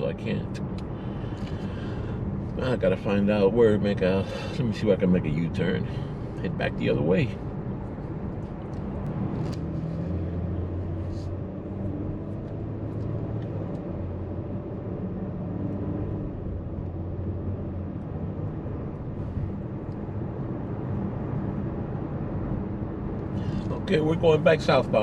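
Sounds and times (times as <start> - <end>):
car engine hum: 0.0 - 25.0
road noise: 0.0 - 25.0.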